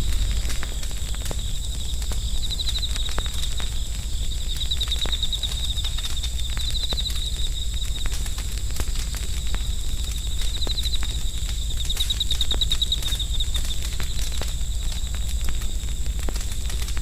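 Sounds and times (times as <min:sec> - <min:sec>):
campfire crackling and popping: 0:00.0 - 0:17.0
insects trilling: 0:00.0 - 0:17.0.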